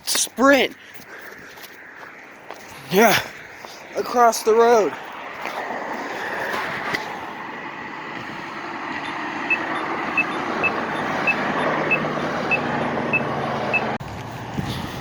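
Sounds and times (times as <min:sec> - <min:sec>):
road traffic going by: 0:00.0 - 0:15.0
low engine hum: 0:05.6 - 0:15.0
pedestrian crossing signal beeping: 0:09.0 - 0:14.0.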